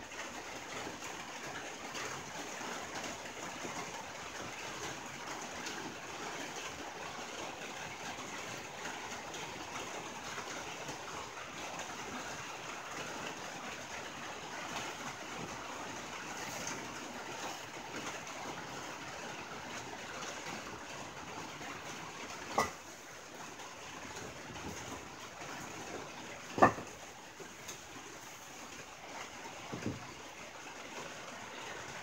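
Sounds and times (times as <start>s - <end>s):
rain on a tin roof: 0.0s - 32.0s.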